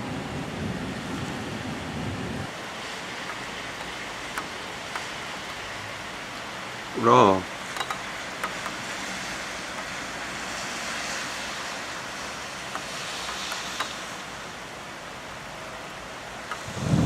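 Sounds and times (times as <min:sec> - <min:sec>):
steady rain: 0:00.0 - 0:17.0
faint ticks: 0:16.5 - 0:16.7.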